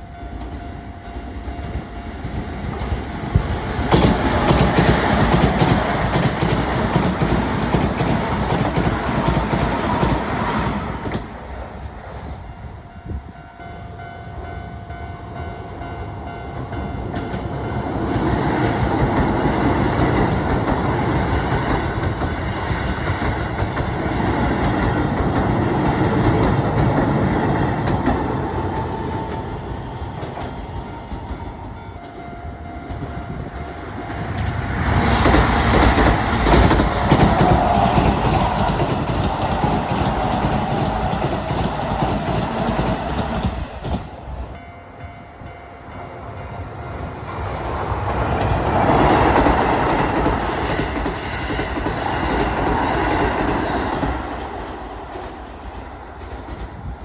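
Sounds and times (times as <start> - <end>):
train wheels clattering over rail joints: 2.6 - 12.4, 33.9 - 44.2, 47.6 - 56.9.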